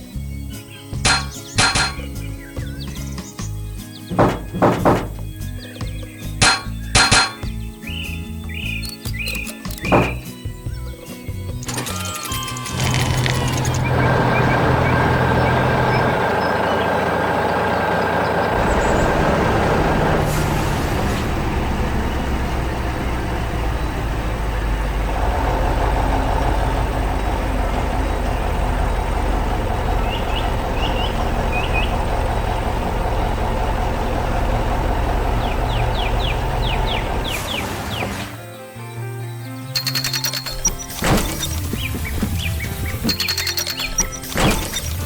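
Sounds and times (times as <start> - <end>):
heavy machine engine running: 1.0 - 2.8, 4.0 - 5.7, 6.4 - 10.9, 11.5 - 38.4.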